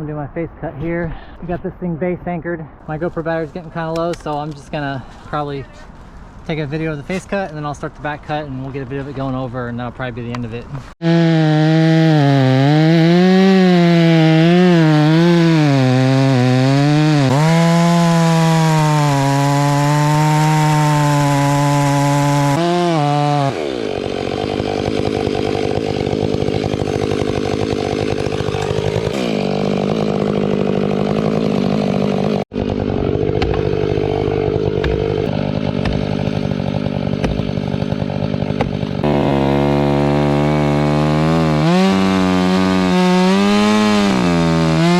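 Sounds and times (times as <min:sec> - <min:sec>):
chainsaw cutting tree: 0:11.0 - 0:44.9.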